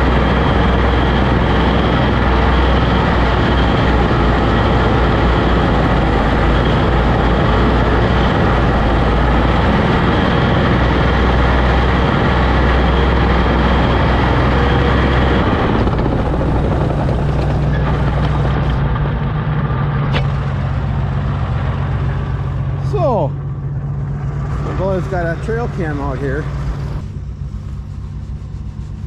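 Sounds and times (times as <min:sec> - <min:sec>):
tractor engine rumbling: 0:00.0 - 0:29.0.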